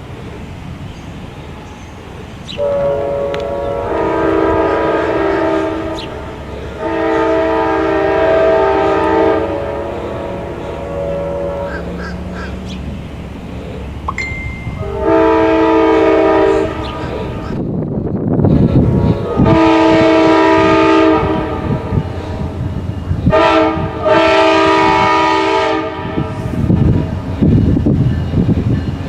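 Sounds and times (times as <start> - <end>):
passing train rumble: 0.0 - 29.0
train horn blasts: 2.5 - 12.7, 14.2 - 17.6, 18.4 - 27.2.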